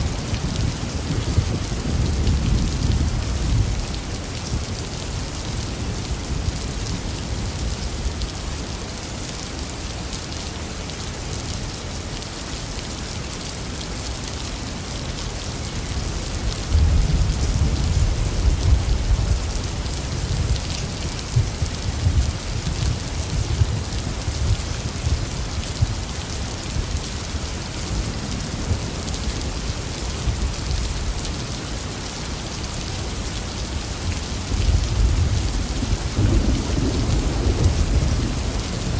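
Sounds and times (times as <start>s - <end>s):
heavy rain falling: 0.0s - 38.9s
low roll of thunder: 34.9s - 38.9s.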